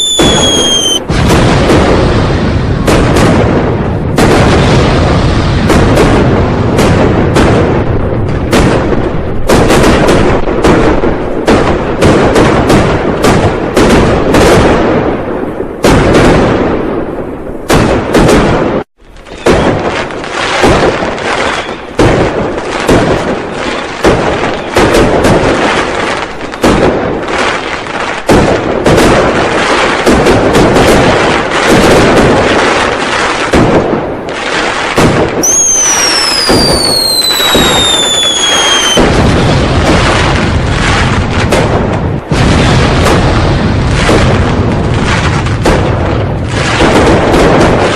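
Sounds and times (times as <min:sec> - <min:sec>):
whistling firework: 0:00.0 - 0:03.5, 0:17.7 - 0:28.2, 0:34.4 - 0:41.8
firecrackers and fireworks banging: 0:00.0 - 0:47.9.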